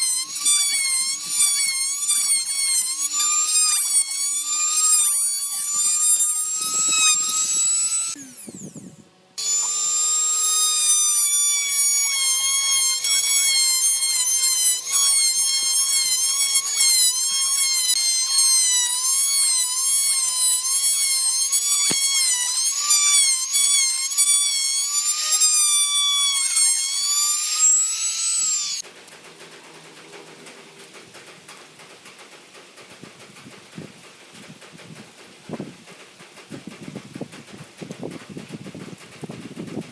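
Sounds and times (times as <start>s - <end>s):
power tool motor whining: 0.0s - 28.9s.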